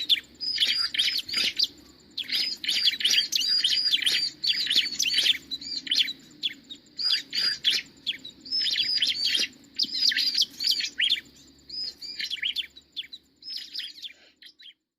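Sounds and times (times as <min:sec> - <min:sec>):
small bird sharp chirps: 0:00.0 - 0:14.9.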